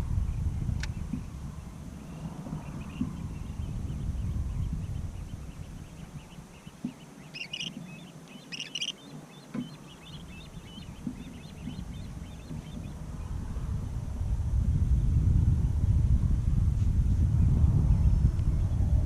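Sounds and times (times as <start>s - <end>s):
small birds chirping: 0.0s - 13.7s
wind rumble on microphone: 0.0s - 19.0s.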